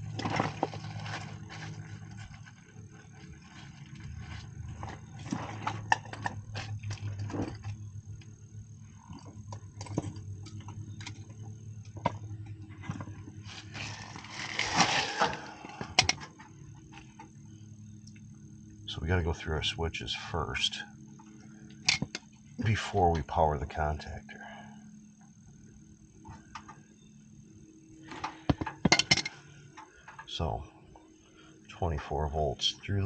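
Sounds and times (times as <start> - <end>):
steady low hum: 0.0 - 33.0
scraping rustle: 0.2 - 7.7, 12.8 - 15.8.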